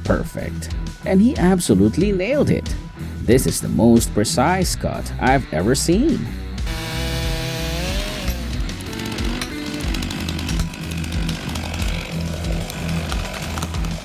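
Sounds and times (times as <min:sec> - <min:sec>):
background music with beat: 0:00.0 - 0:14.0
chainsaw engine cutting: 0:06.6 - 0:14.0.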